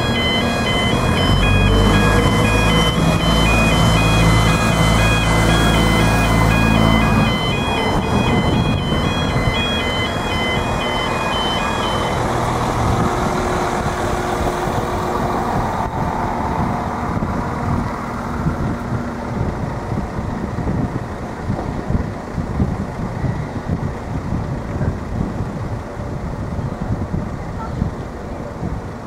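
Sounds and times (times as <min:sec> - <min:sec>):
crossing alarm two-tone warble: 0:00.0 - 0:21.5
passing train rumble: 0:00.0 - 0:29.0
road traffic idling: 0:00.0 - 0:29.0.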